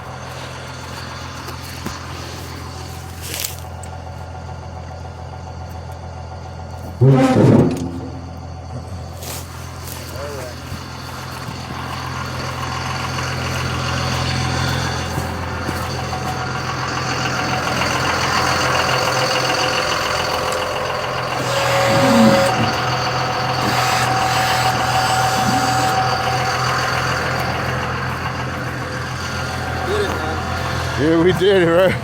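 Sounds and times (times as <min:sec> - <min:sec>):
vehicle engine idling: 0:00.0 - 0:32.0
high-pitched whine: 0:06.8 - 0:32.0.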